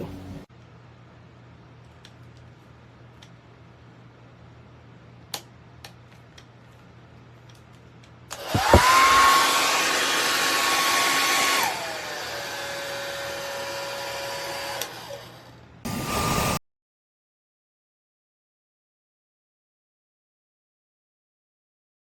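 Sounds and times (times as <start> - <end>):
hair dryer switch click: 8.3 - 9.4
hair dryer motor whining: 8.3 - 16.6.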